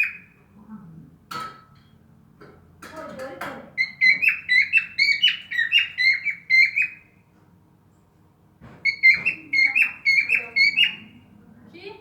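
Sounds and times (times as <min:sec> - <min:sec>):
cockatiel whistling: 0:03.8 - 0:07.0, 0:08.9 - 0:11.0.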